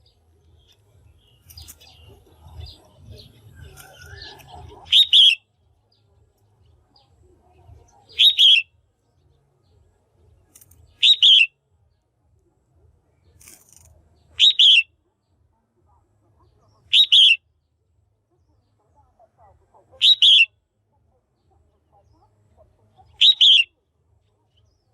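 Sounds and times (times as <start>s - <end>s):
bird two-part call: 3.7s - 5.4s, 8.1s - 8.7s, 10.9s - 11.5s, 14.4s - 14.9s, 16.9s - 17.4s, 20.0s - 20.5s, 23.1s - 23.7s.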